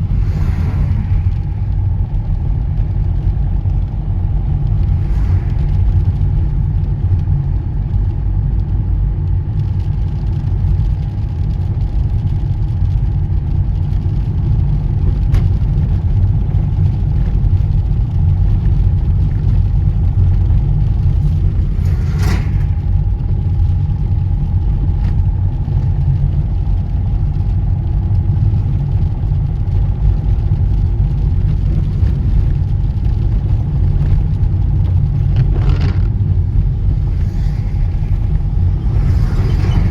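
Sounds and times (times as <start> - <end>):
faint whine: 0.0 - 9.1, 28.5 - 39.9
car engine and tyre rumble: 0.0 - 39.9.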